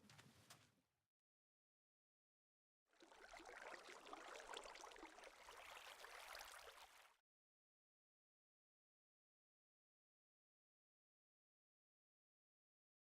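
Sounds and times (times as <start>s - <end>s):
faint trickling water: 2.9s - 7.2s.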